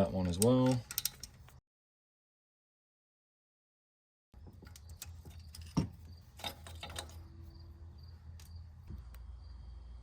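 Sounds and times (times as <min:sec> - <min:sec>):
metallic clicks and taps of tools: 0:00.0 - 0:01.6.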